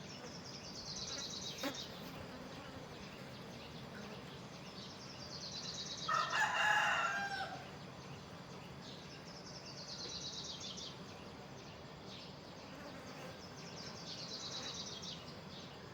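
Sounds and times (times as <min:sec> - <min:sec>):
faint outdoor background: 0:00.0 - 0:15.9
rooster crowing: 0:06.1 - 0:07.7.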